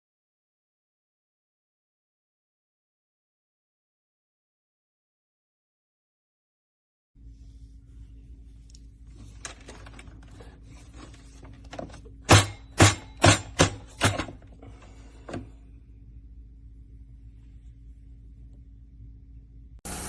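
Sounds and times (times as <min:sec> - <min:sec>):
steady low hum: 0:07.2 - 0:20.0.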